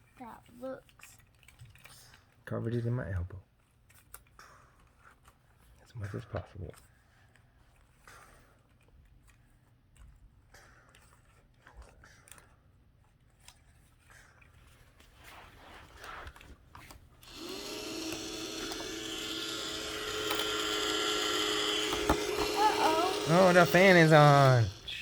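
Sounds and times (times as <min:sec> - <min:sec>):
toys clicking and tapping: 0:16.8 - 0:25.0
toy motor whining: 0:17.2 - 0:25.0.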